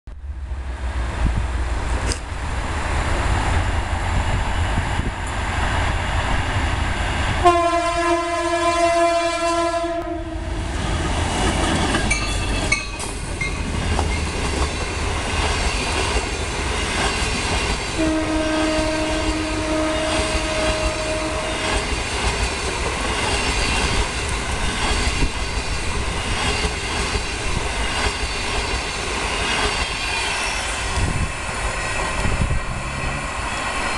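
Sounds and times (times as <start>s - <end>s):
train rumble: 0.1s - 33.9s
locomotive horn blast: 7.4s - 10.6s, 18.0s - 21.8s
wheels clacking over rail joints: 10.8s - 18.0s.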